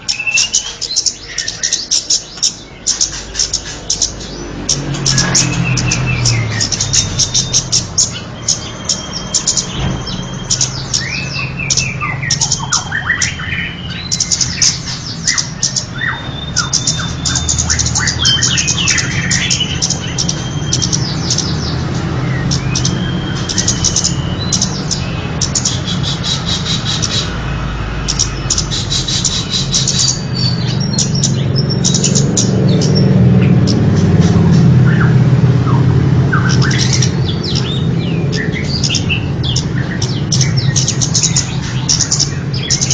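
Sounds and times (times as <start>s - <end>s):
recorded bird calls: 0.0s - 42.9s.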